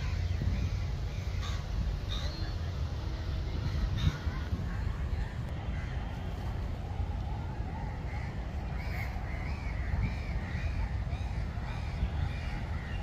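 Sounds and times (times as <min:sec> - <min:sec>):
bird calling: 0:00.0 - 0:06.0
low steady rumble: 0:00.0 - 0:13.0.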